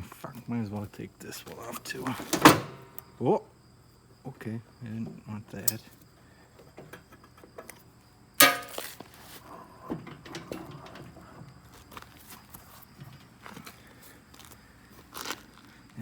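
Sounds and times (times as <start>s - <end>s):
loud metallic clang: 8.4s - 8.9s.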